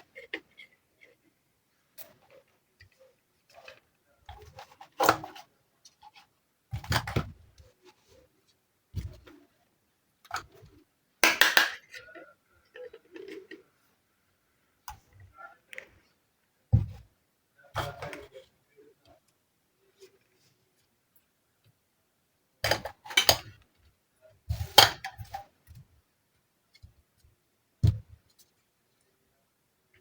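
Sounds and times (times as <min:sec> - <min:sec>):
toy kitchenware clicks and clatters: 0:22.7 - 0:23.5.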